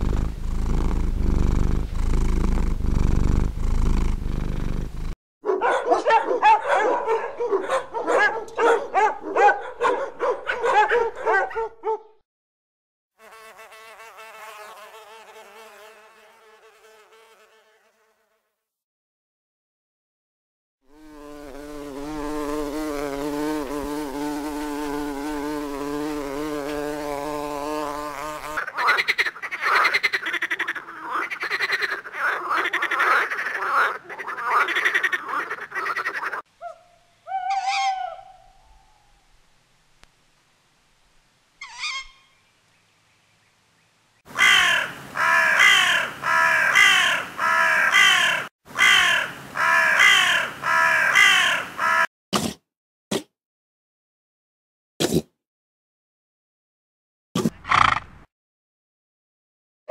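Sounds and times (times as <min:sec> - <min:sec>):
animal buzzing drone: 0:00.0 - 0:05.0, 0:20.9 - 0:28.6
rapid pulsing croak-like call: 0:28.6 - 0:36.5, 0:44.3 - 0:52.1, 0:57.6 - 0:58.2
short animal calls: 0:28.7 - 0:39.2, 0:41.6 - 0:42.4.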